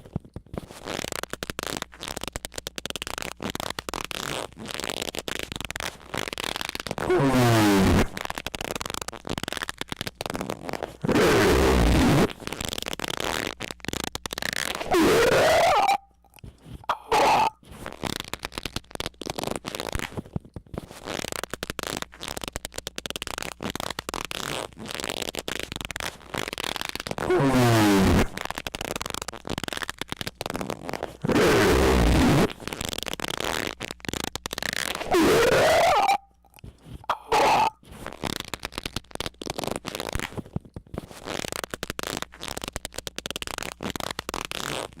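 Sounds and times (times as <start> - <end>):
dense crackling and sputtering: 0.4 - 45.0
short loud squeak: 14.7 - 16.1.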